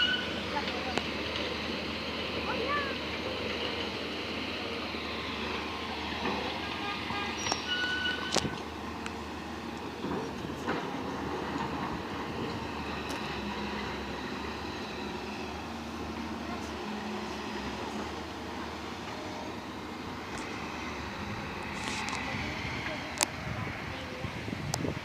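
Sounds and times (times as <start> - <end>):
metallic squeals: 0.0 - 0.4, 7.2 - 8.5
heavy construction machinery running: 0.0 - 25.0.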